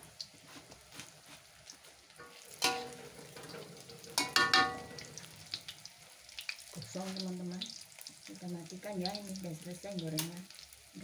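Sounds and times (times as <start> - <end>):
fritters sizzling in oil: 0.0 - 11.0
metal spatula scraping wok: 2.2 - 5.0.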